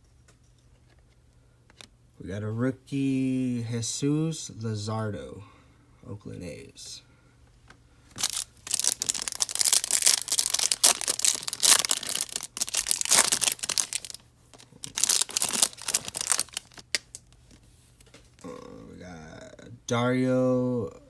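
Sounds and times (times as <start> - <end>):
foil wrapper tearing and crinkling: 8.2 - 17.2.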